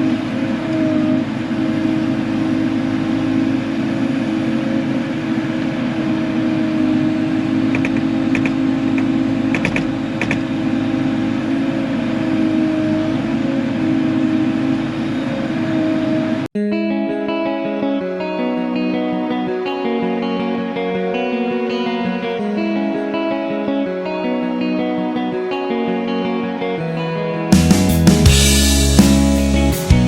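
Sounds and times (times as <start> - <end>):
diesel engine running under load: 0.0 - 16.5, 27.5 - 30.0
guitar music: 0.0 - 30.0.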